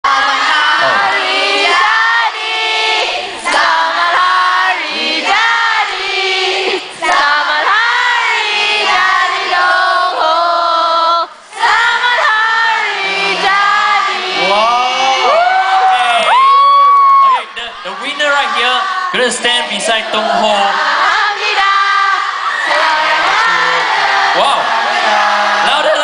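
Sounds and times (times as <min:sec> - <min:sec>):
audience singing together: 0:00.0 - 0:15.5, 0:17.4 - 0:26.0.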